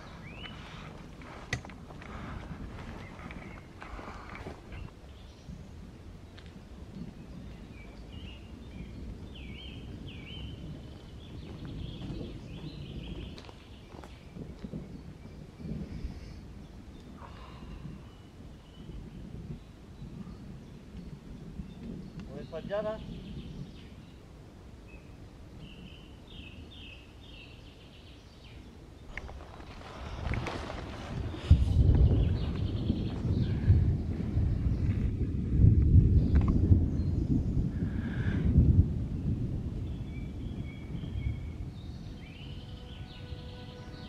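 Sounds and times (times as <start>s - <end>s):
small bird singing: 4.7s - 29.4s, 39.2s - 44.0s
low outdoor rumble: 28.7s - 44.0s
songbird whistling notes: 40.0s - 44.0s.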